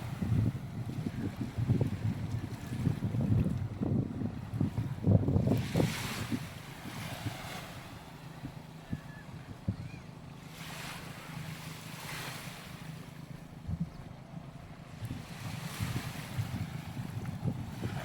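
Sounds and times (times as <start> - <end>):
wind buffeting microphone: 0.0 - 18.0
small waves washing onto sand: 5.4 - 8.6.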